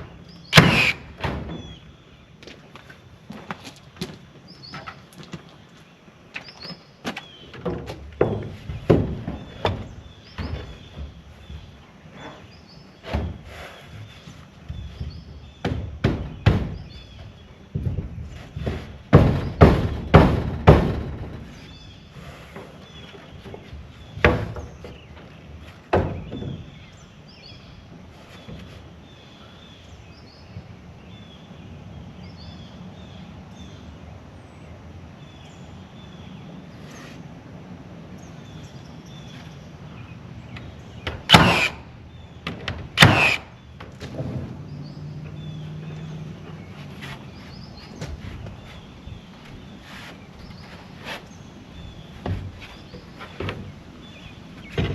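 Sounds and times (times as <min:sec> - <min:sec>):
outdoor background noise: 0:00.0 - 0:54.9
sharp thuds and knocks: 0:07.0 - 0:11.7, 0:14.6 - 0:21.7, 0:22.6 - 0:26.8, 0:52.0 - 0:53.8, 0:54.6 - 0:54.9.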